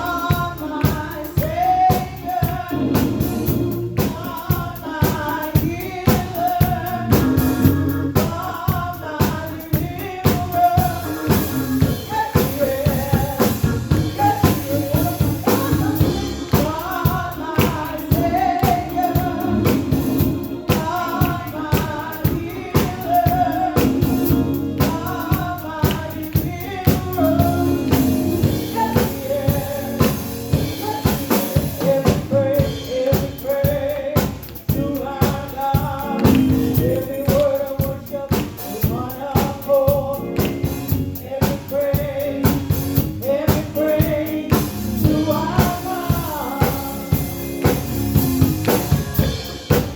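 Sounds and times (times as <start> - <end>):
drum kit beat: 0.0 - 49.9
voices singing gospel with band: 0.0 - 49.9.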